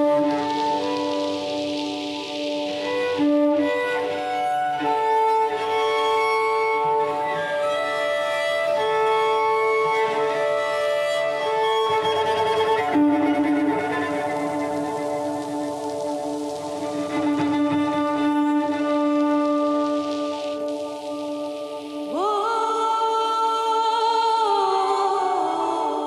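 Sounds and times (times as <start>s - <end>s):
bowed cello long notes: 0.0s - 22.4s.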